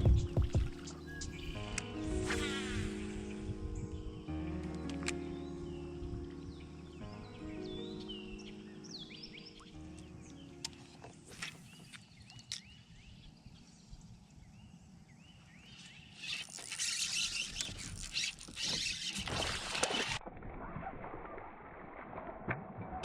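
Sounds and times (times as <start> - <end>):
small birds chirping: 0.0 - 1.6, 4.8 - 19.4.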